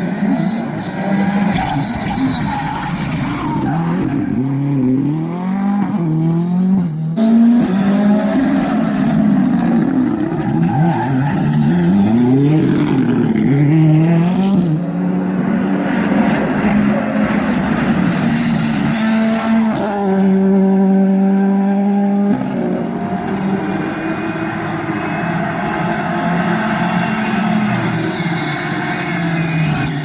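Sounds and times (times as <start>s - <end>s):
rally car engine revving: 0.0s - 30.0s
tyre squeal: 0.2s - 4.3s, 8.2s - 12.6s, 27.8s - 30.0s.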